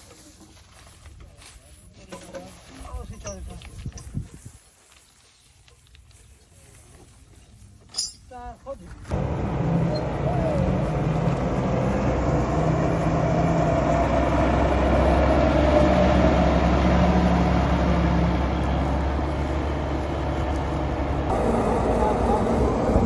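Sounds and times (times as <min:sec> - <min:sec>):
combine harvester droning: 0:09.1 - 0:23.0.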